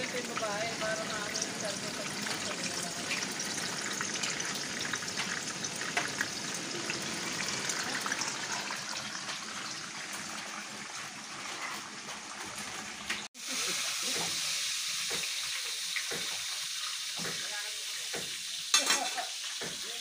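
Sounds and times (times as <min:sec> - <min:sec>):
tofu deep-frying in oil: 0:00.0 - 0:20.0.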